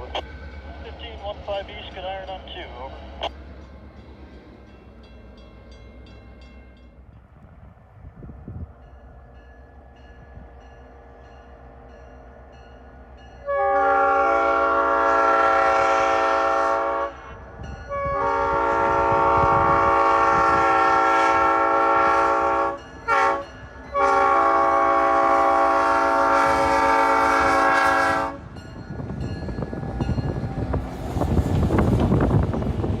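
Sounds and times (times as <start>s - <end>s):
train rumbling: 0.0s - 33.0s
locomotive air horn chime: 13.4s - 30.7s.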